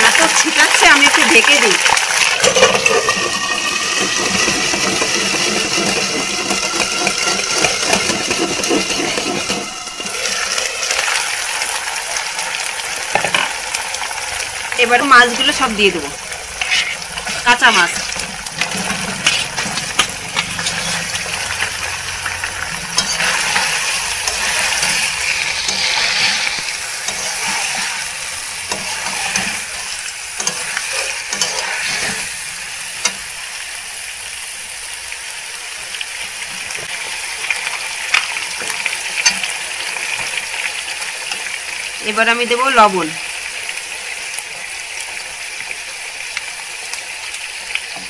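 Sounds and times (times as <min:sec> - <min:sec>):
fish sizzling in hot oil: 0:00.0 - 0:48.0
metal spatula scraping a pan: 0:02.4 - 0:11.2, 0:15.8 - 0:33.3.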